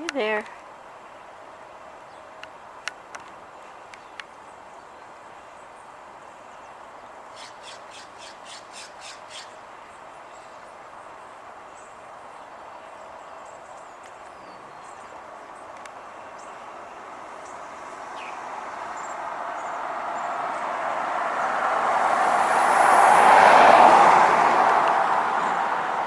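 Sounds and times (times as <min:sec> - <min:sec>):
small birds chirping: 0:03.5 - 0:20.7
vehicle passing: 0:16.0 - 0:26.0.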